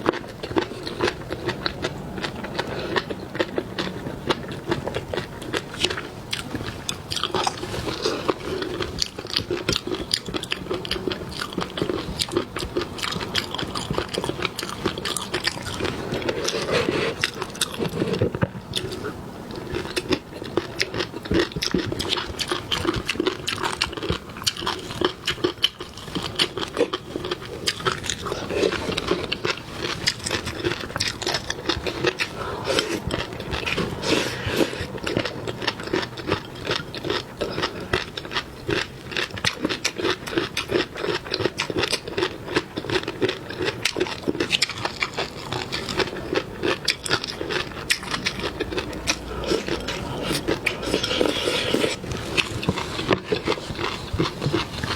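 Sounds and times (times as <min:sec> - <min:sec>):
chewing and crunching food: 0:00.0 - 0:54.9.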